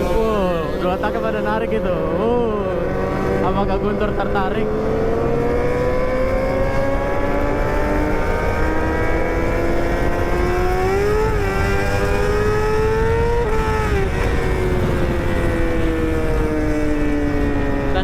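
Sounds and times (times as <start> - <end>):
motorcycle engine revving: 0.0 - 18.0
wind and road rumble: 0.0 - 18.0.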